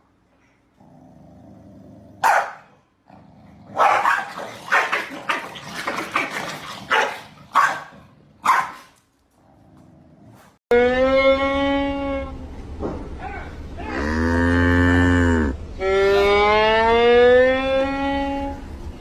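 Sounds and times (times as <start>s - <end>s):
dog barking: 2.2s - 2.8s, 3.8s - 5.4s, 6.9s - 8.9s.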